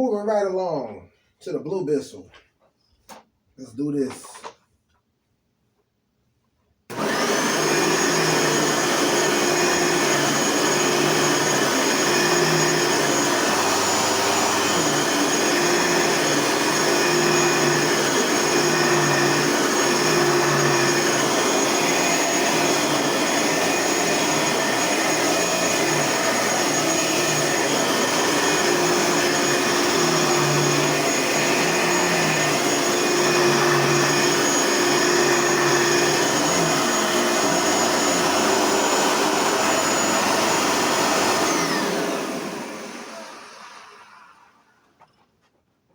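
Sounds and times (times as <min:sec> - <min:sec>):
vacuum cleaner motor whine: 0:06.9 - 0:44.9.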